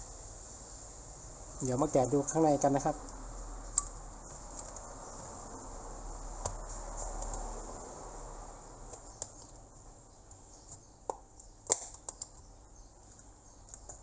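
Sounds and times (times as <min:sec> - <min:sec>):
high-pitched background hiss: 0:00.0 - 0:09.2.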